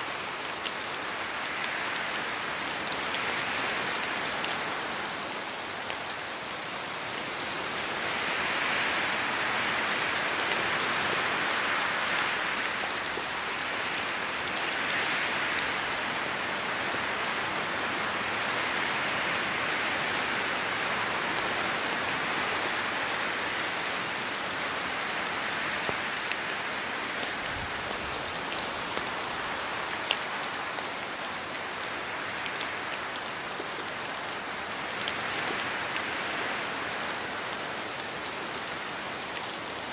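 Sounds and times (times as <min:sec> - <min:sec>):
rain falling on forest: 0:00.0 - 0:39.9.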